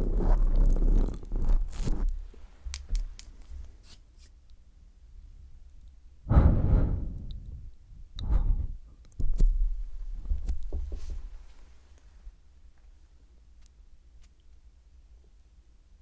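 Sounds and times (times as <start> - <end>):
whooshing on microphone: 6.3 - 8.7.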